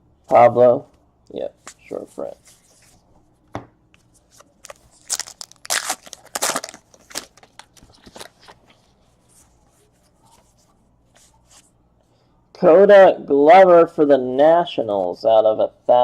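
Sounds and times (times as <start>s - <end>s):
card pack wrapper crinkling and tearing: 4.4s - 8.5s.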